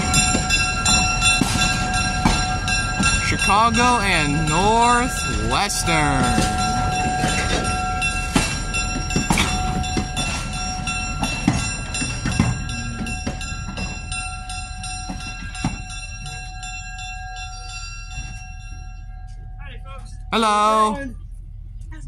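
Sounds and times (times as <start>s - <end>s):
train wheels knocking over rail joints: 0.0s - 16.6s
steady high ringing tone: 0.0s - 22.0s.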